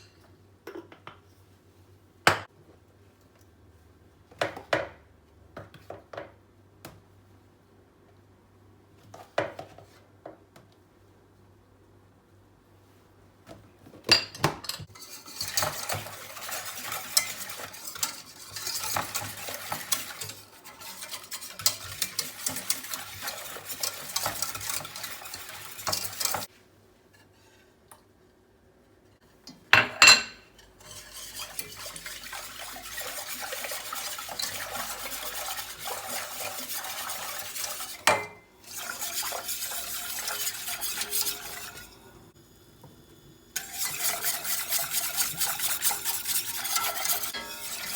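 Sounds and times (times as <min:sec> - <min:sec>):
utensil scraping a dish: 0:14.8 - 0:26.5, 0:30.5 - 0:42.3, 0:43.6 - 0:47.9.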